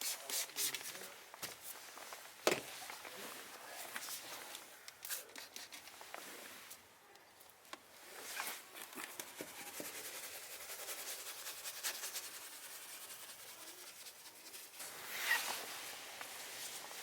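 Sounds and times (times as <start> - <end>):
scrubbing an interior surface: 9.2 - 17.0.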